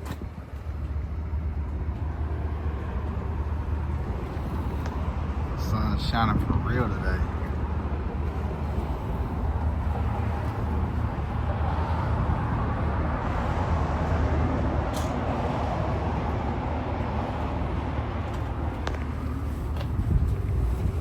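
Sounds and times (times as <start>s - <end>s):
truck engine rumble: 0.0s - 21.0s.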